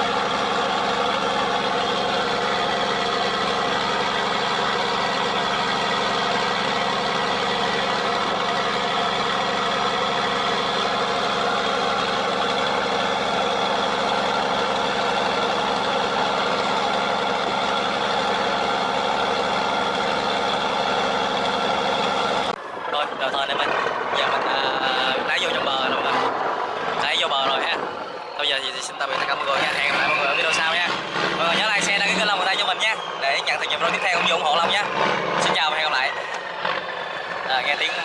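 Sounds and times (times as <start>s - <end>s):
diesel engine droning: 0.0s - 38.0s.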